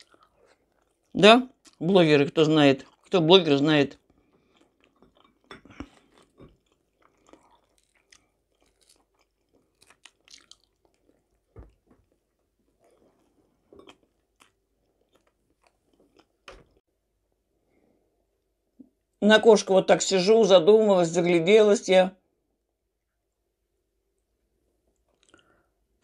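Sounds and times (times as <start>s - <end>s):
mouth chewing food: 0.0s - 16.8s, 24.9s - 25.5s.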